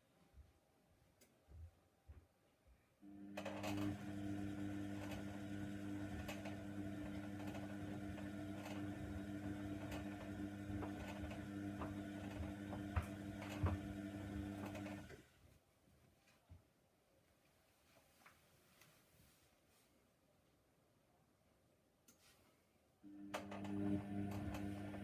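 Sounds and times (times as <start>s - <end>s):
washing machine drum humming: 3.1s - 15.2s, 23.1s - 25.0s.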